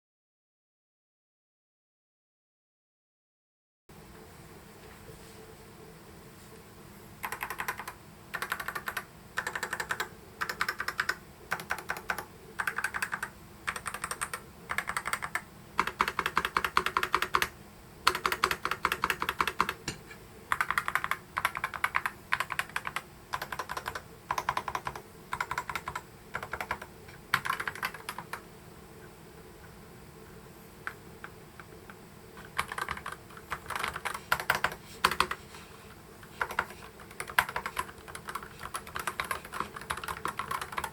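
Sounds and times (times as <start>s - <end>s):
typing on keyboard: 7.2s - 17.5s, 18.1s - 19.8s, 20.5s - 28.4s, 32.4s - 35.4s, 36.3s - 40.9s.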